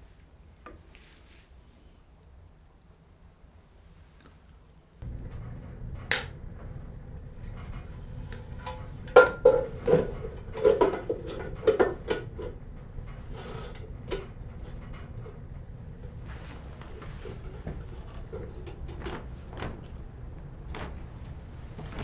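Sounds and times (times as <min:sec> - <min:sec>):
pots and pans clattering: 0:05.0 - 0:22.0
steady low rumble: 0:05.0 - 0:22.0.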